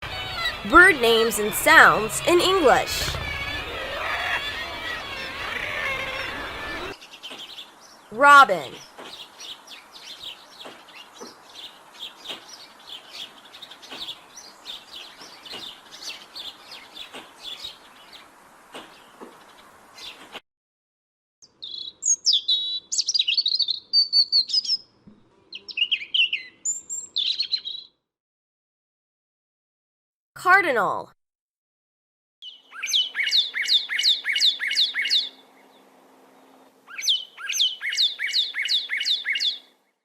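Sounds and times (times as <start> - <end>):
robin calling: 0.0 - 20.2, 21.4 - 24.9, 25.5 - 27.9, 32.4 - 35.8, 36.9 - 39.7
outdoor hiss: 8.8 - 20.4.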